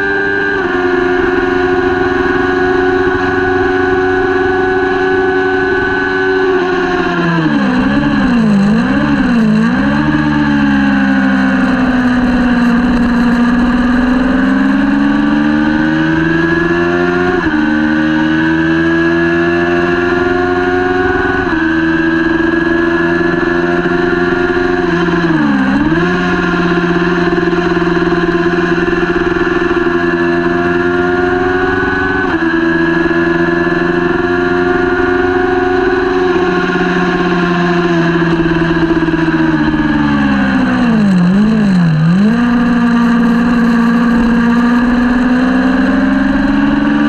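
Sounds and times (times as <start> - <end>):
motorcycle engine accelerating: 0.0 - 47.0.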